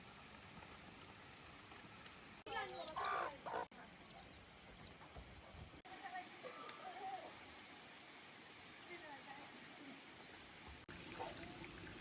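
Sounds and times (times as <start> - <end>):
small birds chirping: 2.4 - 12.0.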